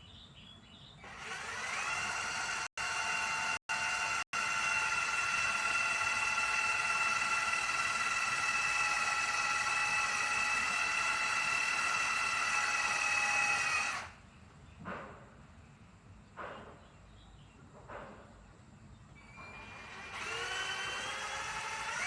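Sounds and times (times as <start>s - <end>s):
electric drill whining into metal: 1.0s - 14.2s, 19.2s - 22.0s.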